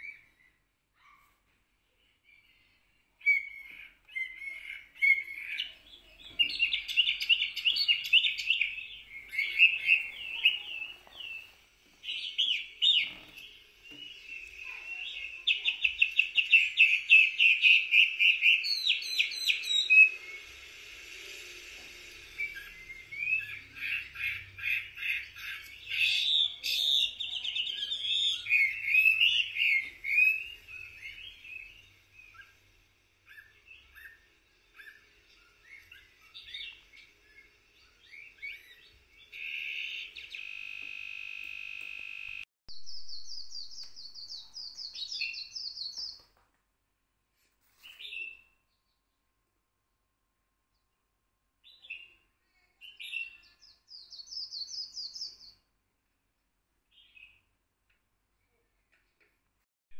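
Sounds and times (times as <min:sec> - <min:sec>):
small songbirds chirping and trilling: 0:00.0 - 0:46.4, 0:47.6 - 0:49.4, 0:50.6 - 0:55.8, 0:56.4 - 0:59.3.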